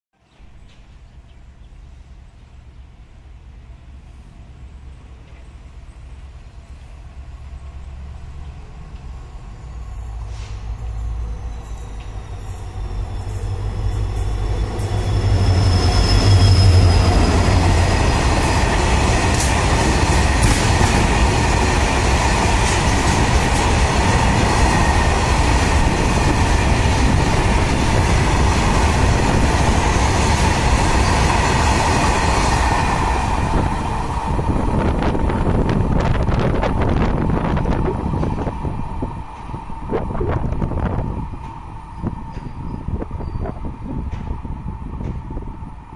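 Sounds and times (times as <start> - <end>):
thin wheel squeal: 13.4 - 17.6.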